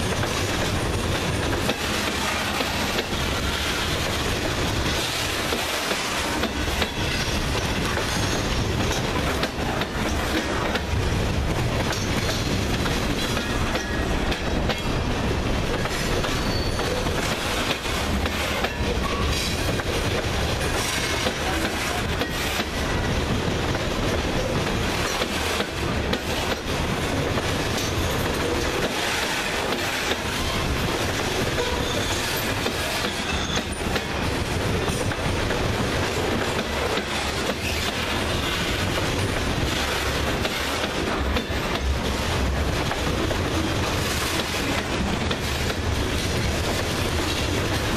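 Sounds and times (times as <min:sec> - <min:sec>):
wheels clacking over rail joints: 0:00.0 - 0:15.0
steel wheels rumbling on rail: 0:00.0 - 0:47.9.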